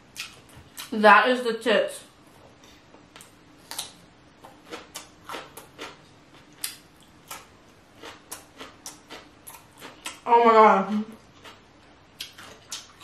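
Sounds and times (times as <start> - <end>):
chewing crunches: 3.2 - 10.2, 11.3 - 11.6, 12.2 - 13.0.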